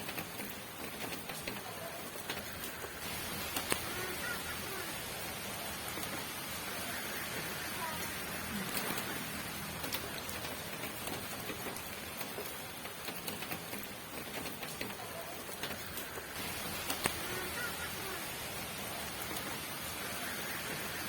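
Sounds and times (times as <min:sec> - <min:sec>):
drops ticking: 0:00.0 - 0:21.0
steady rain hiss: 0:00.0 - 0:21.0.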